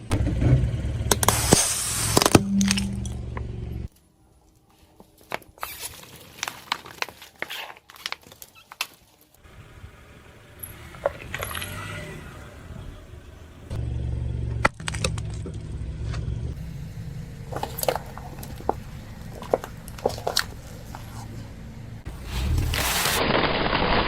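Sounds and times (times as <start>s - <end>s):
car engine running: 0.0s - 3.9s, 9.5s - 23.2s
tyre crushing brittle objects: 5.2s - 9.4s, 17.5s - 21.5s, 22.1s - 24.0s.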